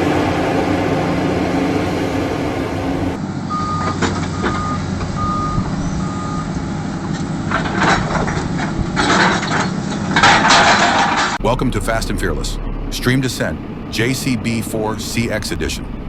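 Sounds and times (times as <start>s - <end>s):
diesel engine running: 0.0s - 16.0s
reversing alarm beeping: 3.5s - 6.6s.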